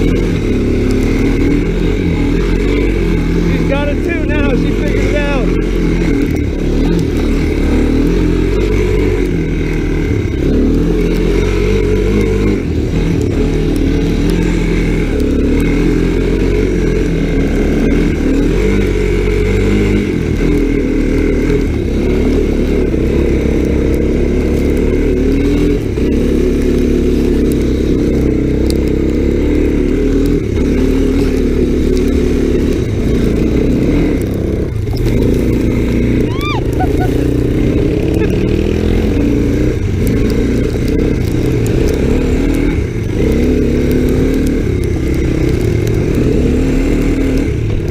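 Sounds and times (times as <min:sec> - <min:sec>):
off-road motorcycle engine running: 0:00.0 - 0:47.9.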